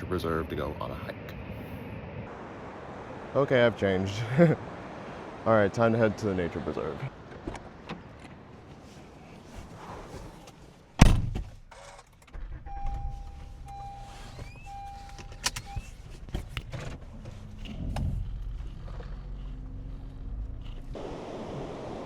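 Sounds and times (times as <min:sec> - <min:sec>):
car door shutting: 0:07.2 - 0:08.4, 0:09.5 - 0:21.0
car engine idling: 0:10.9 - 0:21.1.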